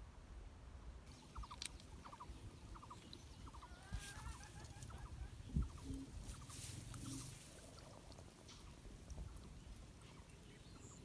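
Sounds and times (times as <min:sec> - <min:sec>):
bird warbling: 0:01.1 - 0:08.7
bird chirping: 0:01.1 - 0:11.0.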